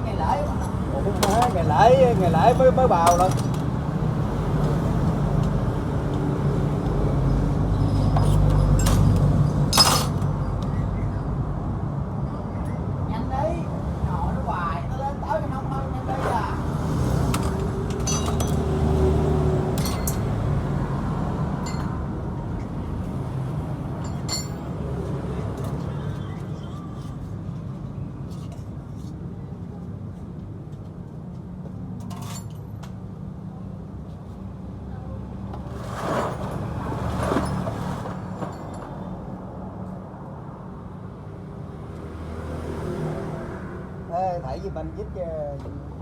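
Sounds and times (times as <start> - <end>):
light metallic clinks: 24.0 - 24.7.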